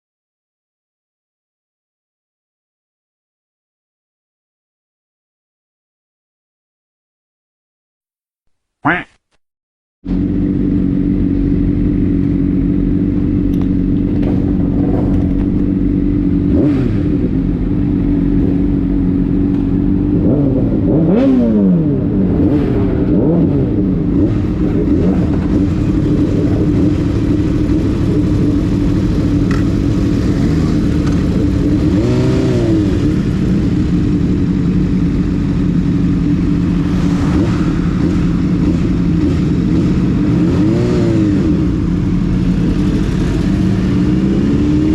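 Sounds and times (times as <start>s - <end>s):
motorcycle engine idling: 10.1s - 14.8s, 33.2s - 36.9s.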